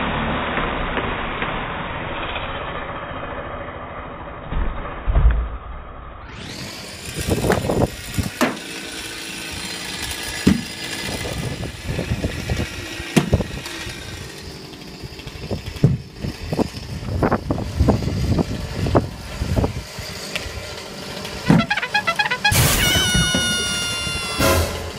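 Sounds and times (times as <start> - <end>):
chainsaw engine idling: 6.4 - 24.7.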